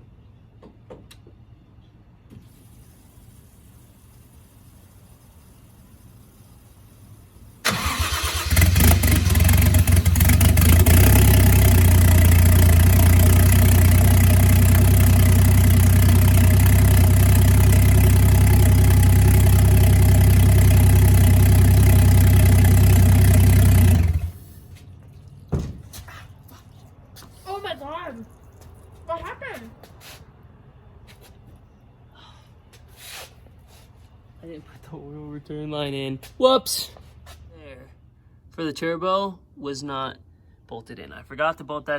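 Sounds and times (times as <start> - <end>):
starter motor cranking: 7.6 - 12.8, 21.2 - 24.4
car engine idling: 7.6 - 24.5.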